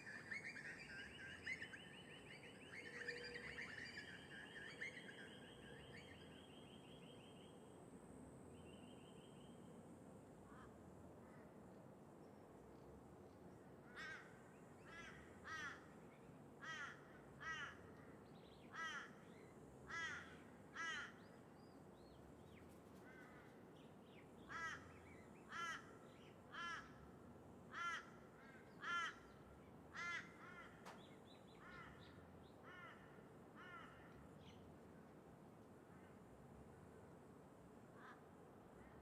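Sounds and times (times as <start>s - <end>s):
low background noise: 0.0s - 39.0s
crow cawing: 16.6s - 17.8s, 19.9s - 21.2s, 24.5s - 24.9s, 25.5s - 25.9s, 26.5s - 27.0s, 27.7s - 28.2s, 28.8s - 29.2s, 30.0s - 30.8s, 32.6s - 34.0s.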